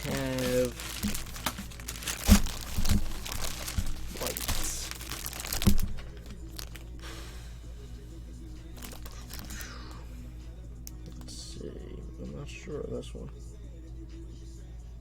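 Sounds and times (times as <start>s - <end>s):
plastic crinkling and rustling: 0.0s - 6.9s, 8.8s - 9.6s
steady low hum: 0.0s - 15.0s.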